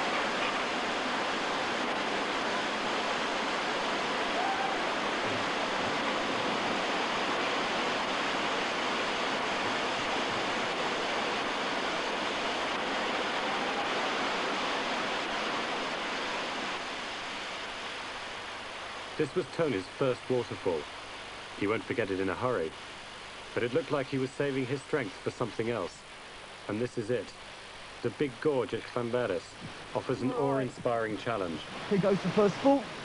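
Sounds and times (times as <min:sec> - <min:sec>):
white water rushing over waterfall: 0:00.0 - 0:19.9, 0:29.6 - 0:33.0.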